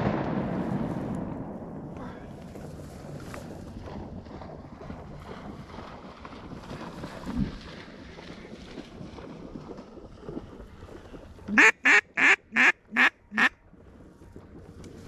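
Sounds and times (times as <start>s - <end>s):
duck call quacks: 11.5s - 13.5s.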